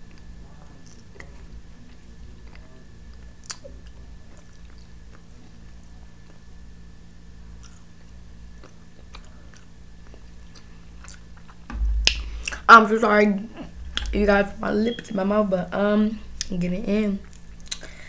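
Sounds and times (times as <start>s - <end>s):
faint steady hum: 0.0s - 18.0s
chewing mouth clicks: 7.6s - 7.9s.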